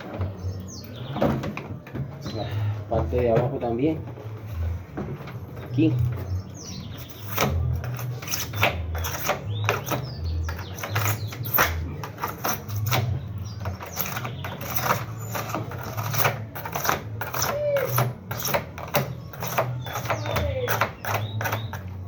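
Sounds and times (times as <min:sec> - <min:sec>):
knife scraping foam: 0:13.7 - 0:18.7.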